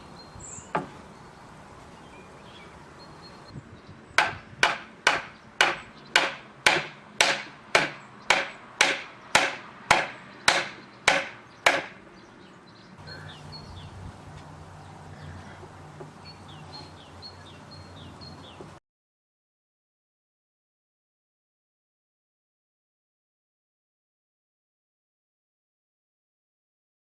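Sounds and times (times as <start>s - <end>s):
hammer blows on wood: 4.2s - 12.0s.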